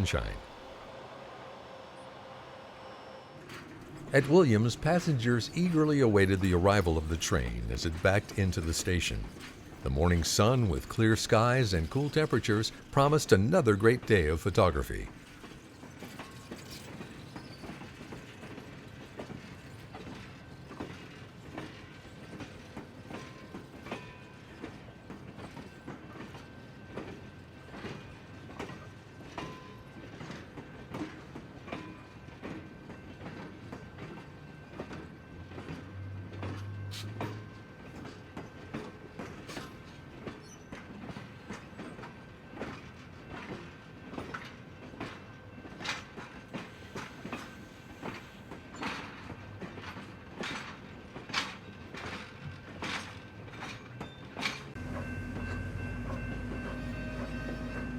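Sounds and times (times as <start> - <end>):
train cars creaking and squealing: 0.0 - 57.9
train rumble: 3.6 - 23.8, 42.5 - 57.9.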